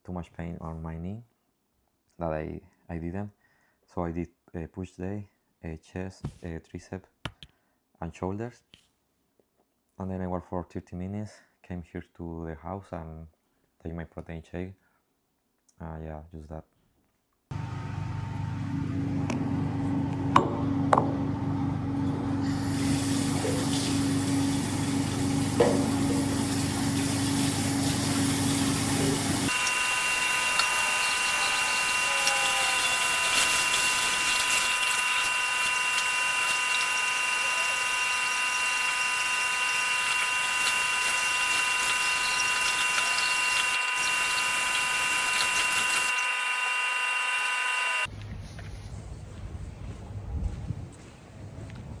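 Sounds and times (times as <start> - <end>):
low motor hum: 17.5 - 52.0.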